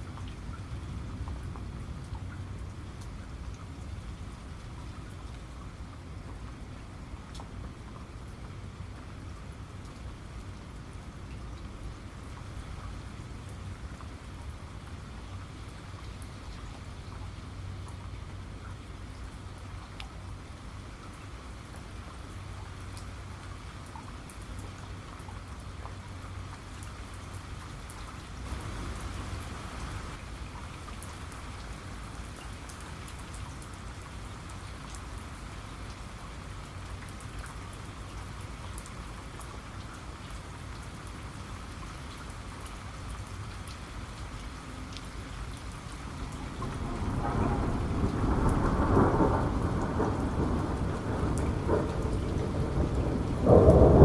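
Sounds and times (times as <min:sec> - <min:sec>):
heavy rain falling: 0:00.0 - 0:54.0
thunder rumbling: 0:46.2 - 0:54.0.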